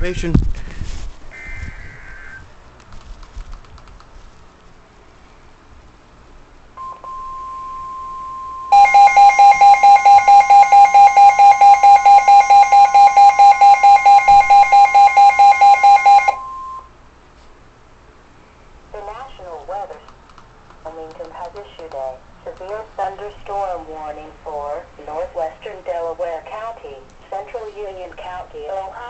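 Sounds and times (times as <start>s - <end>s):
electronic alarm beeping: 6.8s - 16.9s
single-pitch alert tone: 13.9s - 16.9s.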